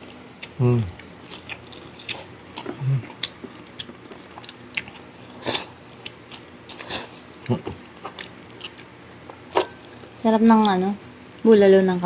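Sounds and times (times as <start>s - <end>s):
chewing and lip smacks: 0.0s - 11.4s.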